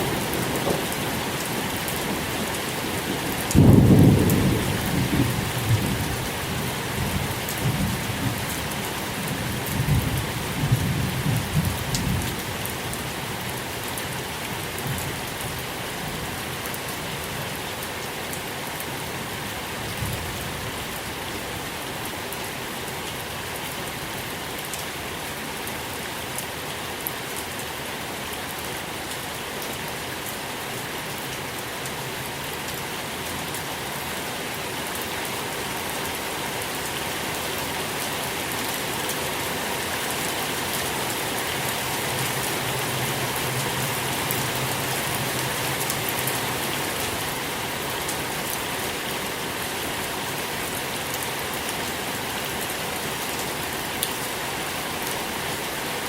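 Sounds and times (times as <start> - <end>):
steady rain falling: 0.0 - 56.0
thunder rumbling: 3.4 - 6.2.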